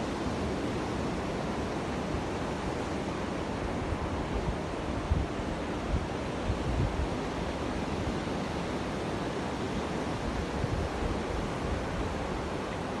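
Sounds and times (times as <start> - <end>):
sea waves washing in: 0.0 - 13.0
wind buffeting microphone: 3.7 - 7.2.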